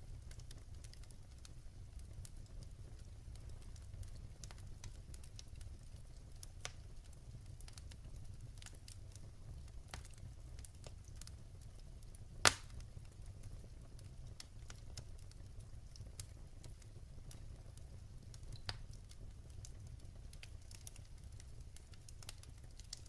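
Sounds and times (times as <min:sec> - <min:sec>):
fire crackling: 0:00.0 - 0:23.0
fire rumbling: 0:00.0 - 0:23.0
loud pop of firewood: 0:12.4 - 0:12.7.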